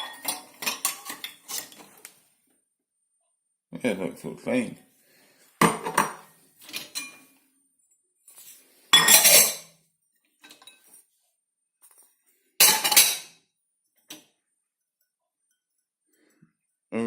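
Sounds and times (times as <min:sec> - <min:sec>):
dishes clattering and clinking: 0:00.0 - 0:02.0, 0:05.6 - 0:07.4, 0:08.9 - 0:09.8, 0:10.4 - 0:11.0, 0:11.8 - 0:13.4.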